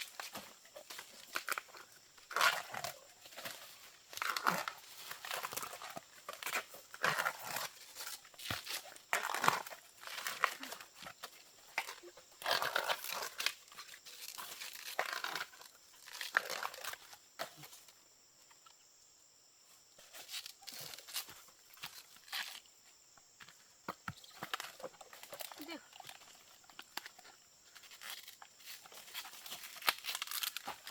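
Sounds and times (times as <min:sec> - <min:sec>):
dry material rustling and tearing: 0:29.7 - 0:30.9.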